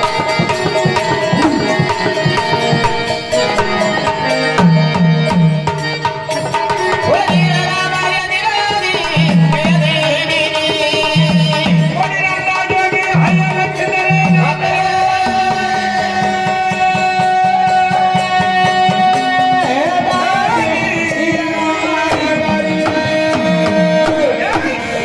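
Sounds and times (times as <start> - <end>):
person singing: 0.0 - 4.6, 6.4 - 25.0
hand drum playing: 0.0 - 7.5
held melody notes: 0.0 - 7.8.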